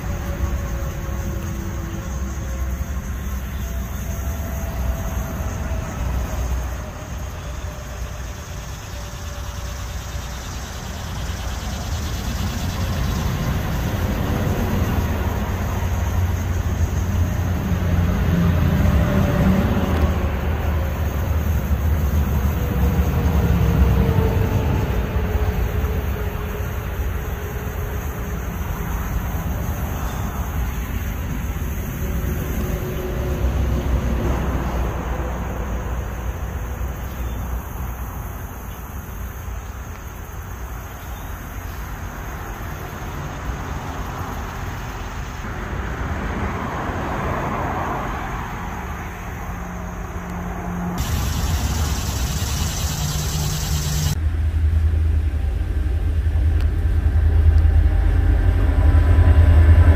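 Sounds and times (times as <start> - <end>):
freight train rumbling: 0.0 - 9.8, 11.8 - 37.7, 51.0 - 59.9.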